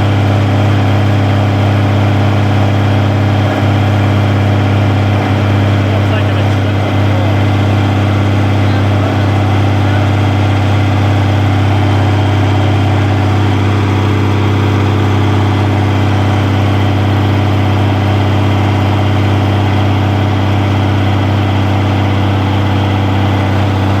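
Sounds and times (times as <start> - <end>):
tractor engine idling: 0.0 - 24.0.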